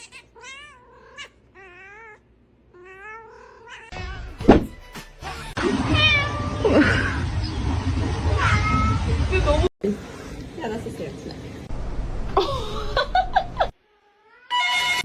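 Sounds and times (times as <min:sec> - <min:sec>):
cat meowing: 0:00.0 - 0:02.2, 0:02.8 - 0:04.4, 0:05.9 - 0:06.6.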